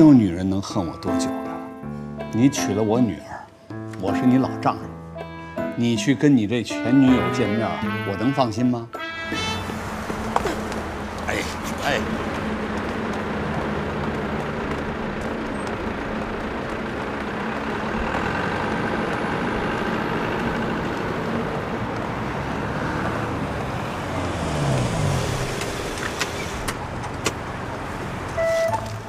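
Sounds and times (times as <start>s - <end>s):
street traffic: 0.0s - 29.0s
bus engine pulling away: 9.0s - 29.0s.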